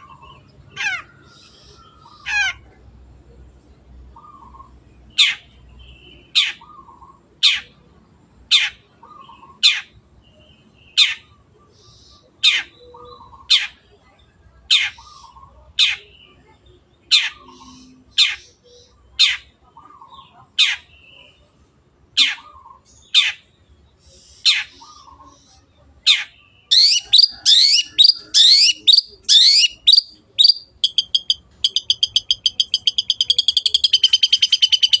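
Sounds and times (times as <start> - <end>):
bird chattering and trilling: 14.7 - 16.4, 17.0 - 21.1, 22.2 - 35.0
shrike calling harsh notes: 26.7 - 35.0.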